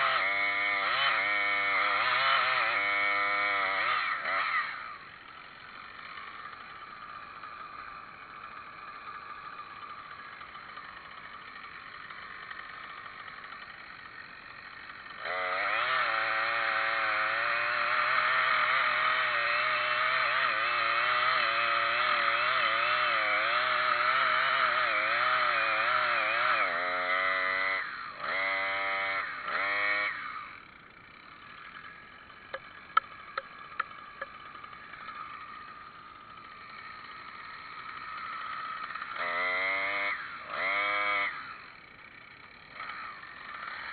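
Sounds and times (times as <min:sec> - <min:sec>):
chainsaw revving: 0:00.0 - 0:43.9
sharp clicks: 0:32.5 - 0:34.4.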